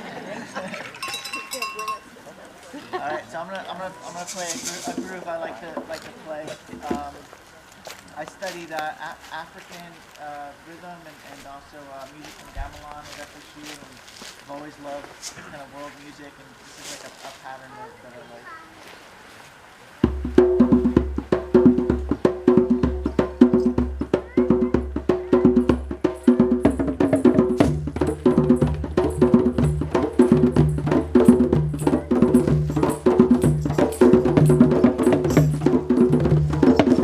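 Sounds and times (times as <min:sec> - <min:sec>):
woody percussive strikes: 0:01.0 - 0:02.2, 0:20.0 - 0:37.0.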